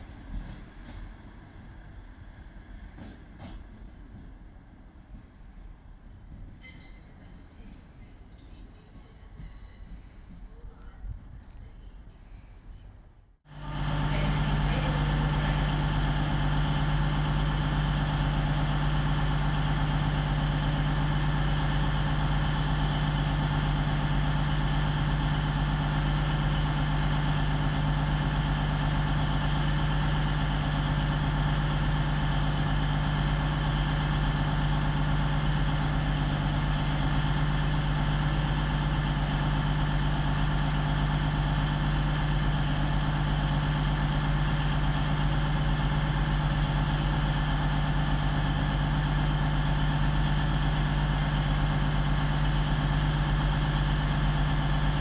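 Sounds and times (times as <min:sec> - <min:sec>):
train idling hum: 0:00.0 - 0:55.0.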